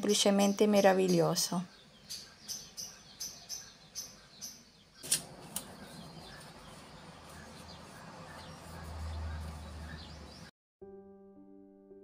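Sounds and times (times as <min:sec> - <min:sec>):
small birds chirping: 0:00.0 - 0:10.5
sharp click: 0:05.0 - 0:05.7.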